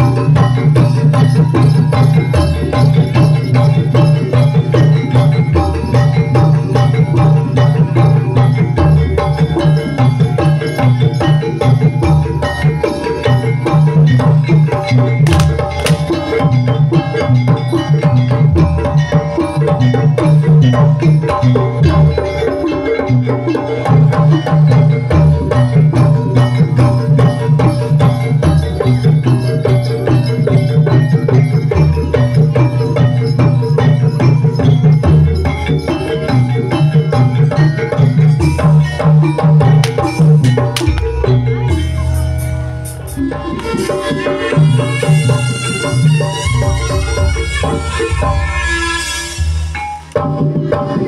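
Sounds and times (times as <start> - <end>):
drums and tuned percussion: 0.0 - 51.0
low drum pattern: 15.2 - 16.5, 39.6 - 43.4.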